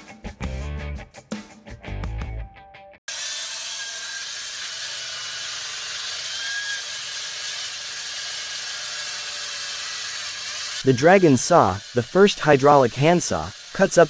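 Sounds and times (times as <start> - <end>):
saw grinding concrete: 3.1 - 14.0.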